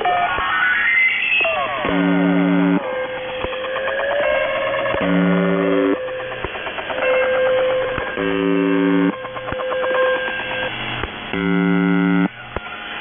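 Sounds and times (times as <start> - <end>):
warbling radio tones: 1.4 - 3.7, 4.9 - 6.4, 8.0 - 10.7, 11.3 - 12.3
radio buzz tone: 1.8 - 2.9, 4.9 - 6.0, 8.0 - 9.2, 11.3 - 12.4.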